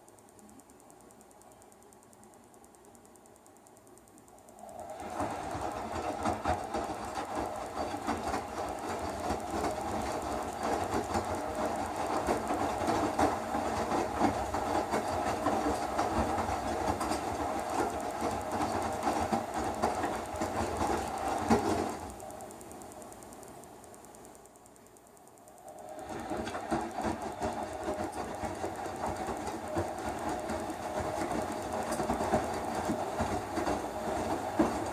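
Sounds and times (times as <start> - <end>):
washing machine rattling and knocking: 5.0 - 22.1, 26.0 - 34.9.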